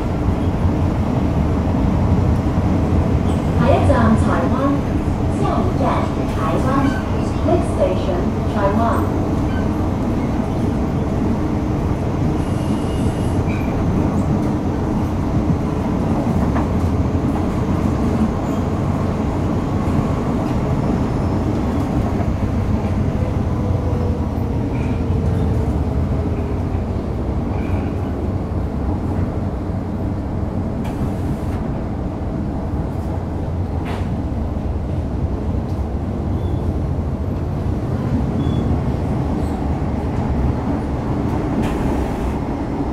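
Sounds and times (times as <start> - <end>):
train wheels rumbling: 0.0 - 42.9.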